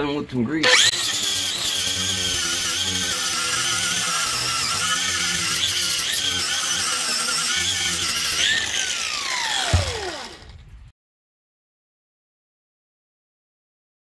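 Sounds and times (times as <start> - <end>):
tool winding down: 0.6 - 10.6
wire wheel grinder scrubbing metal: 0.6 - 10.6.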